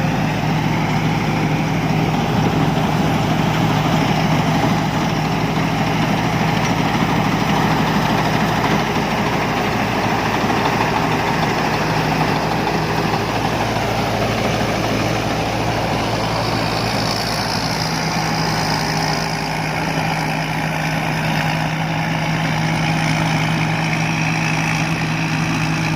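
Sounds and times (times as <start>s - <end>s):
combine harvester engine hum: 0.0s - 25.9s.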